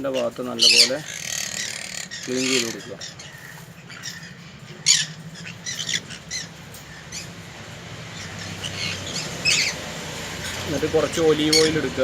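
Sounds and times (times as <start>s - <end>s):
parrot squawking harshly: 0.1s - 7.3s, 8.2s - 9.8s, 11.4s - 11.9s.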